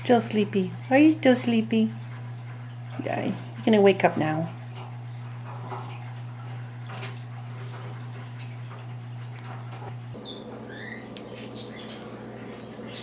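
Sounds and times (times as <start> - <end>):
low electrical hum: 0.0 - 13.0
parrot chirps and squeaks: 10.2 - 12.2.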